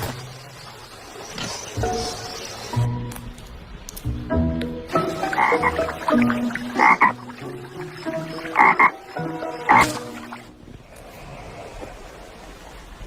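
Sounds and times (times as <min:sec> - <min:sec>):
frog croaking: 0:04.9 - 0:10.3.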